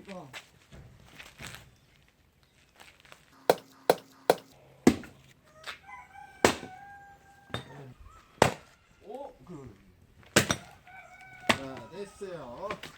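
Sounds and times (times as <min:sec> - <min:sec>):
sharp knocks: 0:03.5 - 0:05.2
rooster crowing: 0:05.4 - 0:09.3, 0:10.5 - 0:12.7.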